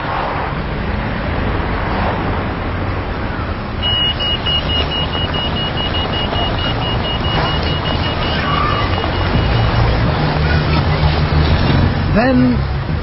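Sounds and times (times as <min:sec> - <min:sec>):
road traffic rumbling: 0:00.0 - 0:13.0
crossing signal rapid beeps: 0:03.8 - 0:10.2.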